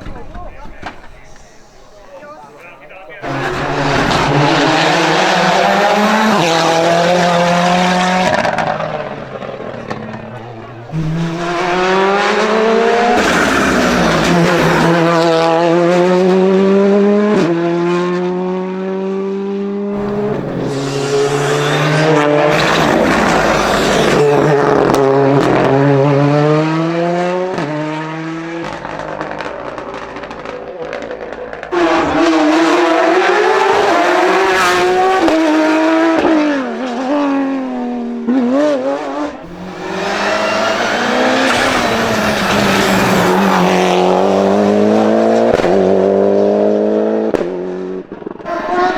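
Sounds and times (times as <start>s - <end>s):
racing car engine revving: 2.9s - 48.9s.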